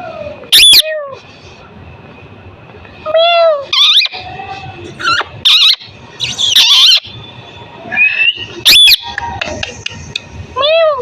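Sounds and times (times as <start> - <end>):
parrot calling: 0.5 - 0.9, 3.1 - 4.2, 5.0 - 7.2, 7.9 - 9.2.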